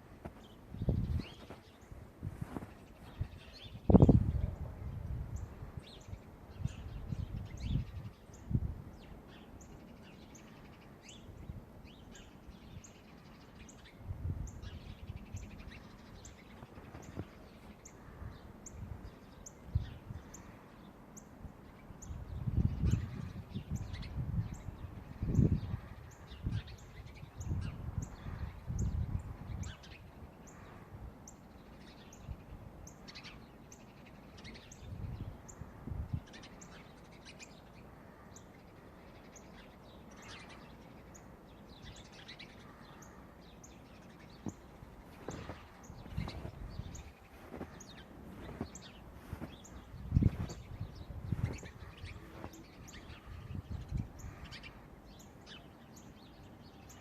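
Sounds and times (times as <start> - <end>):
small birds chirping: 0.0 - 57.0
low muffled thumping: 48.3 - 51.6.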